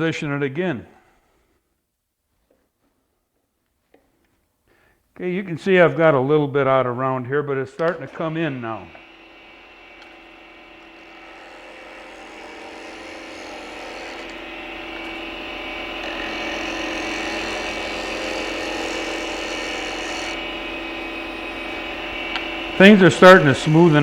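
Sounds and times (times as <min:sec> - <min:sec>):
lathe motor hum: 0:08.0 - 0:24.0
tool cutting wood hissing: 0:08.2 - 0:24.0.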